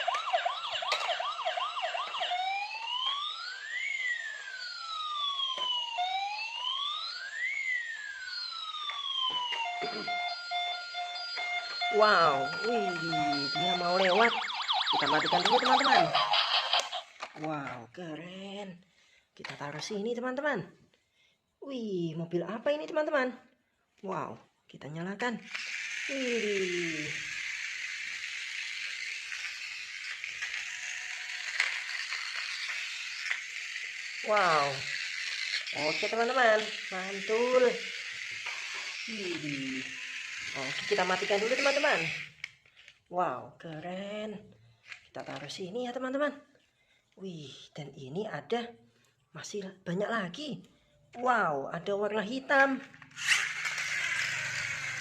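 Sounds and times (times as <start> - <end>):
toy police siren wailing: 0.0 - 17.4, 25.4 - 42.9, 52.9 - 55.0.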